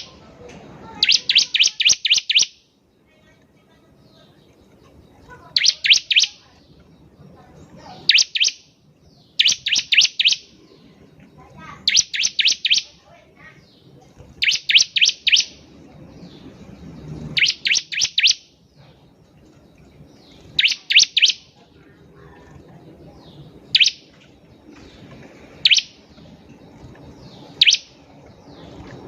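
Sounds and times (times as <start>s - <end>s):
bird calling high sharp notes: 0.8s - 2.8s, 5.4s - 6.5s, 8.0s - 10.6s, 11.6s - 13.0s, 14.4s - 15.7s, 17.2s - 18.6s, 20.4s - 21.6s, 23.6s - 24.3s, 25.6s - 26.2s, 27.5s - 28.0s.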